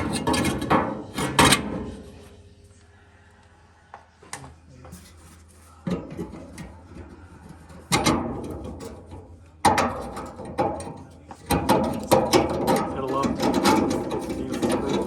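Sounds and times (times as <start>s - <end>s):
metal clattering and clicking: 0.0s - 2.2s, 5.9s - 15.0s.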